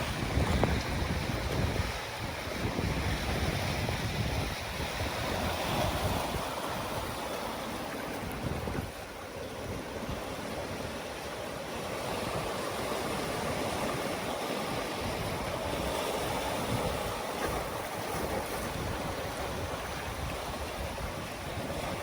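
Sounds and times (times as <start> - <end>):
ocean waves washing in: 0.0 - 22.0.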